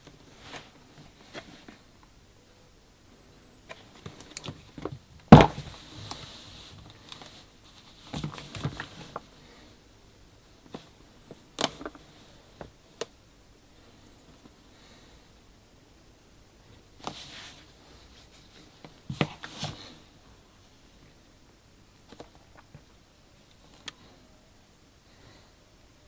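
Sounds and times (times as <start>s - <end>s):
sharp thump: 5.3s - 5.8s
taps and knocks on a box: 5.3s - 5.8s.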